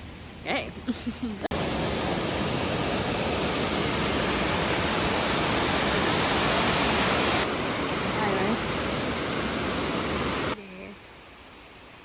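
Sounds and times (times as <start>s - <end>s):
waterfall rushing: 1.5s - 10.6s.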